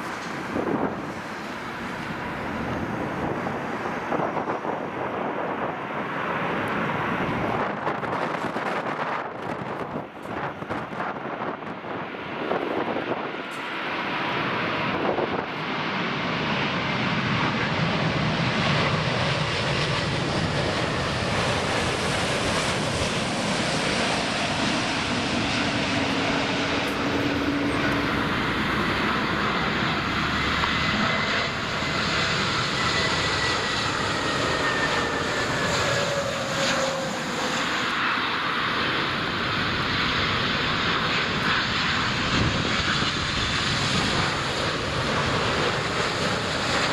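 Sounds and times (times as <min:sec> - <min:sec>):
jet engines roaring: 0:00.0 - 0:46.9
faint engine whine: 0:16.3 - 0:46.9.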